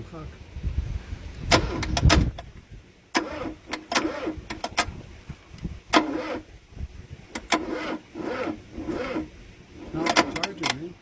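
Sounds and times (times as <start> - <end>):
starter motor whirring: 1.5 - 2.5, 3.1 - 5.0, 5.6 - 6.6, 7.2 - 10.9
sharp click: 10.0 - 10.9.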